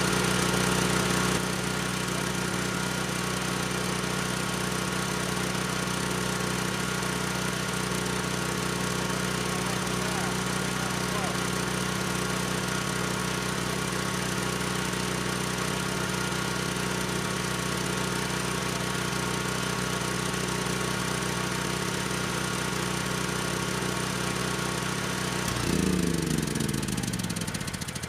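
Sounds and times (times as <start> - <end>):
generator engine running: 0.0 - 28.0.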